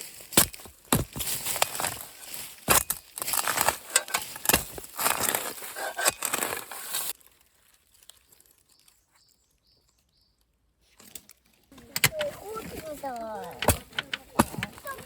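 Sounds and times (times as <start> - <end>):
crunching in dry leaves: 0.0 - 11.8
faint high bird chirps: 8.6 - 10.5.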